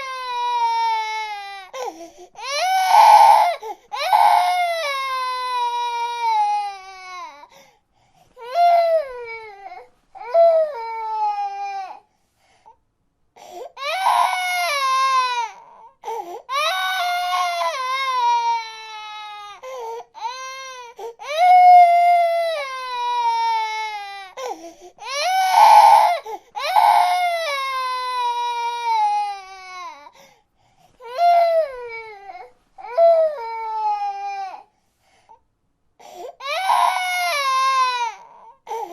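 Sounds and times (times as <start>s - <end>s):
baby crying: 0.0s - 7.5s, 8.4s - 12.0s, 13.6s - 30.2s, 31.0s - 34.7s, 36.0s - 38.9s.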